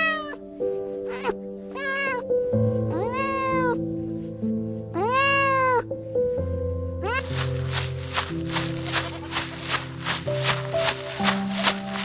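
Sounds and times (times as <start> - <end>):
cat meowing: 0.0 - 0.4, 1.0 - 2.3, 2.9 - 3.8, 5.0 - 5.9, 7.0 - 7.3
background music with held notes: 0.0 - 12.0.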